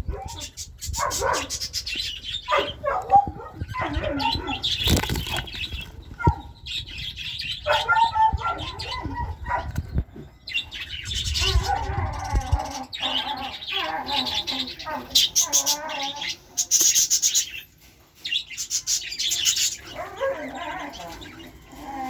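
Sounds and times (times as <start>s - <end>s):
bird chirping: 0.0s - 22.0s
birds flapping wings: 4.7s - 6.0s.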